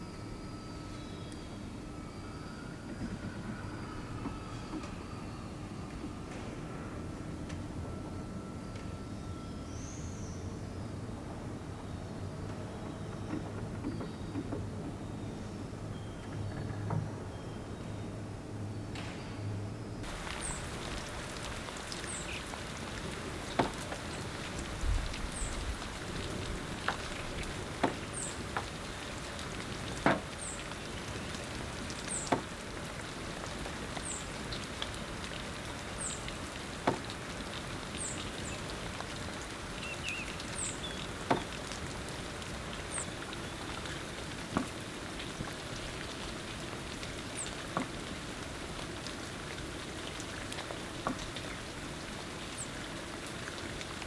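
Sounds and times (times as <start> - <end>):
rain hiss: 20.0 - 54.0
water drips: 20.0 - 54.0.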